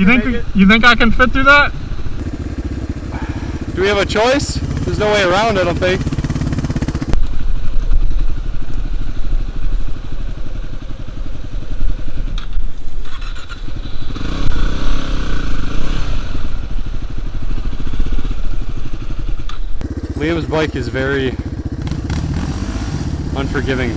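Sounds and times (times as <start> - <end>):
clatter: 2.2 - 7.2
dirt bike engine revving: 2.2 - 7.2, 19.8 - 23.9.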